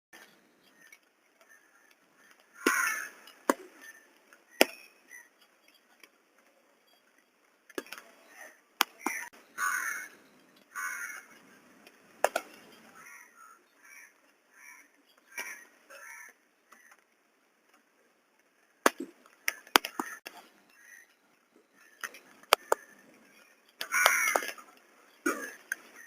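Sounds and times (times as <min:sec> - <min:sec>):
crows cawing: 0:00.7 - 0:04.0, 0:08.3 - 0:11.5, 0:12.8 - 0:17.0, 0:19.5 - 0:21.2, 0:21.8 - 0:26.0.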